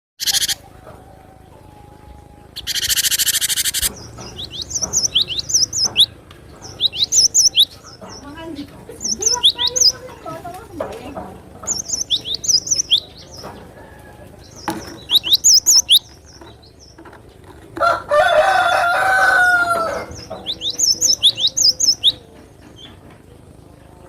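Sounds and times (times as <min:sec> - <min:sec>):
bird chirping rapidly: 0:00.2 - 0:00.7, 0:02.2 - 0:10.2, 0:11.6 - 0:13.8, 0:14.4 - 0:17.4, 0:19.9 - 0:22.9
rooster crowing: 0:13.7 - 0:14.4, 0:17.8 - 0:20.3.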